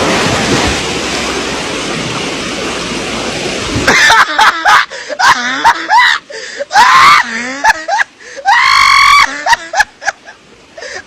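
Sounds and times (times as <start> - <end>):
loud rushing noise: 0.0 - 3.9
person screaming: 5.2 - 9.8.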